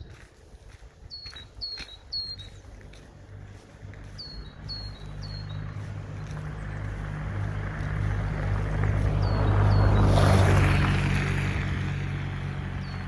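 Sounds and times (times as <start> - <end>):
low engine hum: 0.0 - 13.0
songbird chirping: 0.0 - 13.0.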